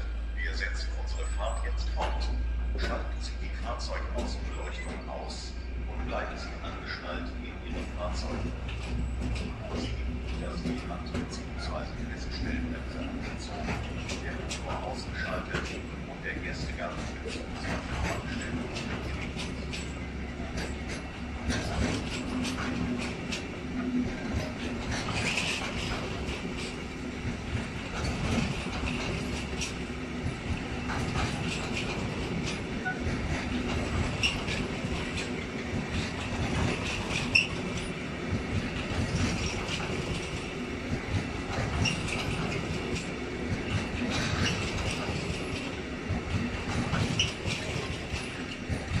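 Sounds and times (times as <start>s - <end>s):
wheels clattering over rail joints: 0.5s - 49.0s
high wheel squeals: 32.5s - 33.3s, 36.8s - 37.9s.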